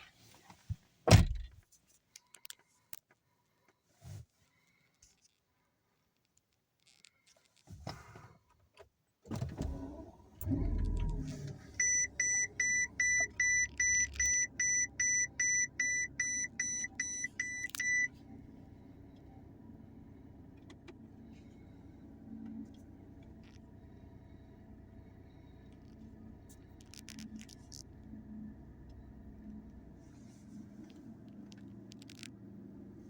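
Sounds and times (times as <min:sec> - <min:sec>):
car engine revving and idling: 0:09.6 - 0:33.0
dashboard warning chime beeping: 0:11.8 - 0:18.2.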